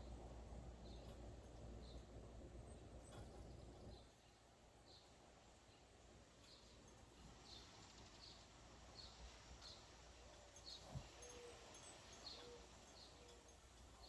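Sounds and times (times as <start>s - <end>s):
bird chirping: 10.6s - 14.0s.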